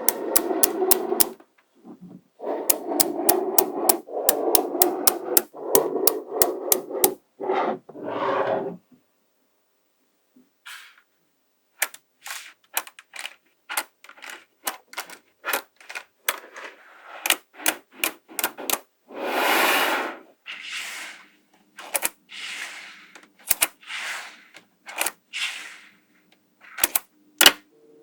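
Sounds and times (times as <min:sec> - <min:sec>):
magnetic balls clicking: 0:00.0 - 0:01.4, 0:02.6 - 0:07.2.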